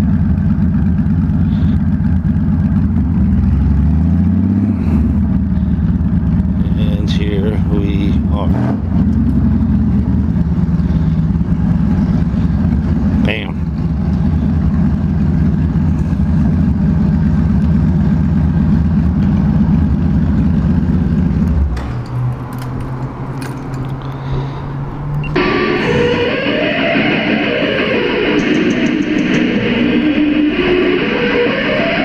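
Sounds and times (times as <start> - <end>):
motorcycle engine idling: 0.0 - 24.7
electric guitar music: 25.0 - 32.0.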